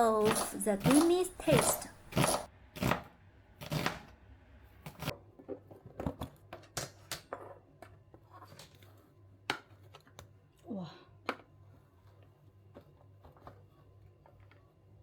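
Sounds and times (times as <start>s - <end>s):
clicks and knocks of food cutting: 0.0s - 3.0s.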